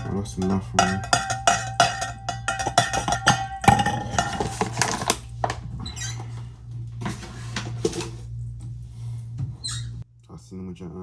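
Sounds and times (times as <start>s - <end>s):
spoon clinking in a mug: 0.0s - 5.2s
low hum: 0.0s - 10.4s.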